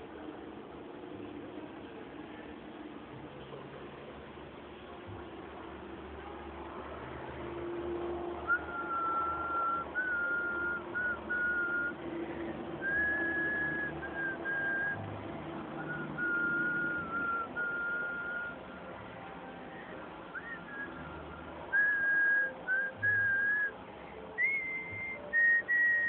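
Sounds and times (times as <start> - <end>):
person whistling a slow tune: 8.4 - 15.1, 15.8 - 18.7, 20.3 - 23.8, 24.4 - 26.0.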